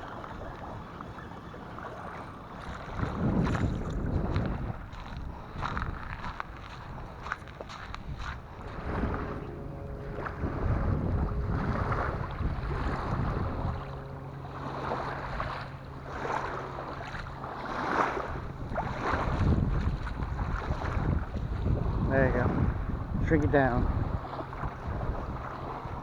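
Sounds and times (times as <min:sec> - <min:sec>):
faint low hum: 0:00.0 - 0:26.0
surf washing on beach: 0:00.0 - 0:26.0
wind buffeting microphone: 0:00.0 - 0:26.0.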